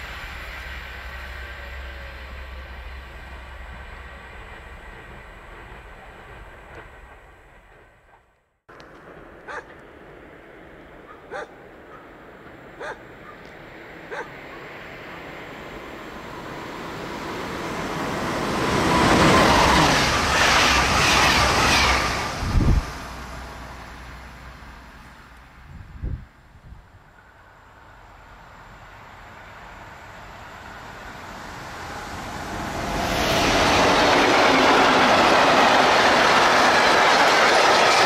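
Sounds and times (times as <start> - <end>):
electric train rushing past: 0.0 - 26.2, 27.0 - 38.0
dog barking: 9.5 - 9.7, 11.1 - 12.1, 12.8 - 13.5, 14.1 - 14.7.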